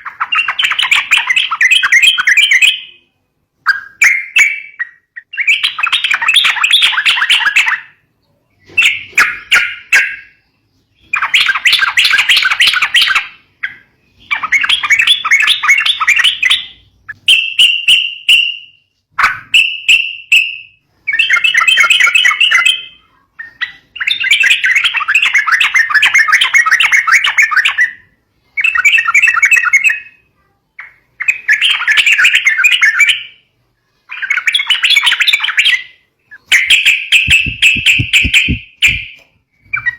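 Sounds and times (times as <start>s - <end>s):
clear bird notes: 34.3s - 39.9s
bird chattering calls: 36.4s - 39.9s.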